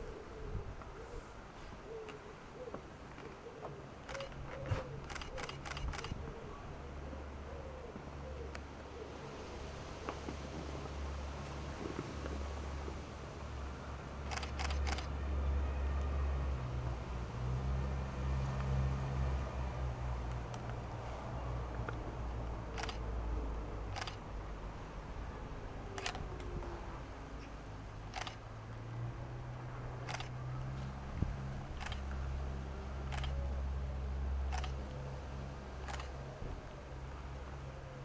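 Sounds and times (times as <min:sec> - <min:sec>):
camera shutter clicking: 0:04.1 - 0:06.2, 0:14.3 - 0:15.1, 0:22.8 - 0:23.2, 0:23.9 - 0:24.3, 0:26.0 - 0:26.7, 0:28.1 - 0:28.5, 0:30.0 - 0:30.5, 0:31.8 - 0:32.2, 0:33.1 - 0:33.4, 0:34.5 - 0:34.9, 0:35.8 - 0:36.2.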